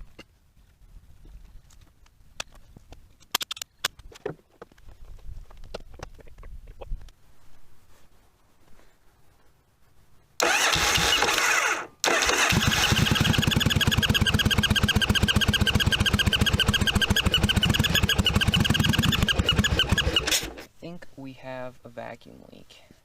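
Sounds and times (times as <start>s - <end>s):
electric starter cranking engine: 10.4s - 20.7s
motorcycle engine idling: 12.2s - 20.6s.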